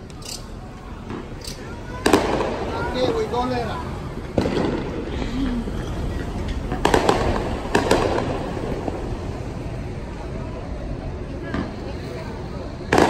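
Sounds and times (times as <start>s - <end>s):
firework cracks and pops: 0.0s - 3.3s, 4.3s - 5.2s, 5.9s - 9.8s
steady background noise: 0.0s - 13.0s
firework bang: 1.0s - 3.6s, 4.2s - 9.8s.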